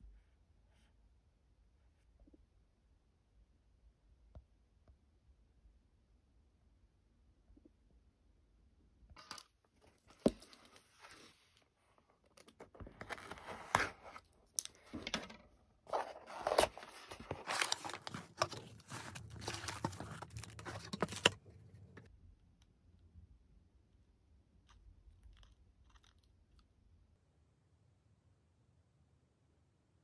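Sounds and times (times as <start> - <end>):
packaging tearing and crinkling: 15.9 - 21.4.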